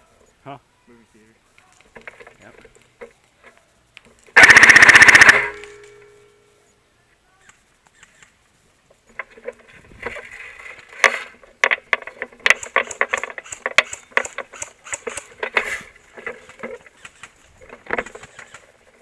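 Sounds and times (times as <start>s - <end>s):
rustling: 0.0s - 19.0s
irregular clicks and knocks: 1.6s - 6.2s, 9.0s - 19.0s.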